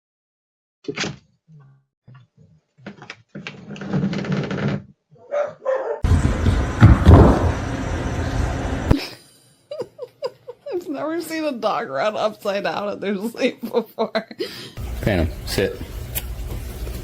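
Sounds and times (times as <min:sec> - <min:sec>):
dog barking: 0:05.2 - 0:06.0.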